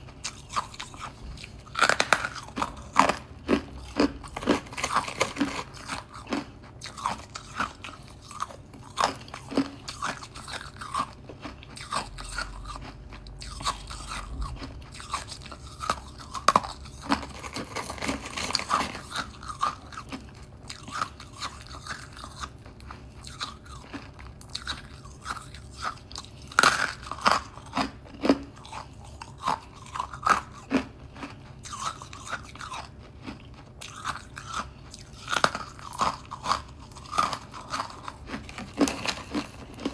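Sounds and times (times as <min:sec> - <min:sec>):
person crunching frozen frost: 0:00.1 - 0:39.9.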